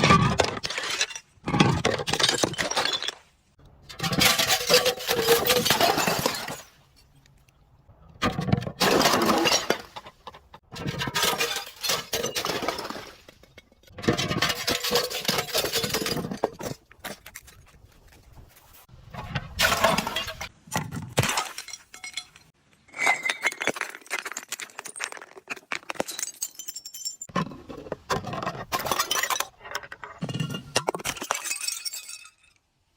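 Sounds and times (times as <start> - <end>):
glass bottles breaking: 3.9 - 7.0, 8.8 - 10.1, 10.8 - 16.7, 21.2 - 27.3, 28.7 - 29.5, 30.2 - 32.6.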